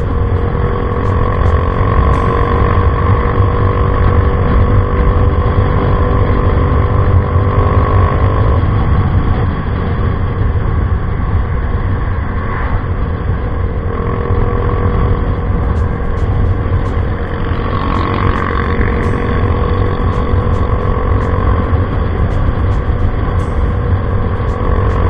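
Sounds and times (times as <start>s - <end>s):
scooter engine rumbling: 0.0s - 8.1s, 14.0s - 25.0s.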